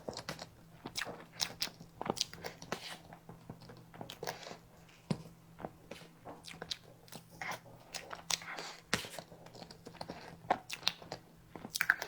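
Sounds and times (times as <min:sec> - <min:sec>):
person chewing: 0:05.8 - 0:12.0.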